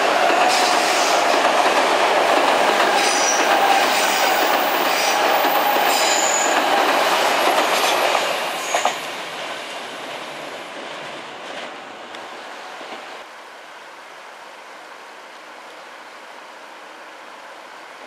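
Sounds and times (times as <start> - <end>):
rail joint clicks: 0.0 - 9.6, 10.8 - 13.2
train rumbling over bridge: 0.0 - 18.0.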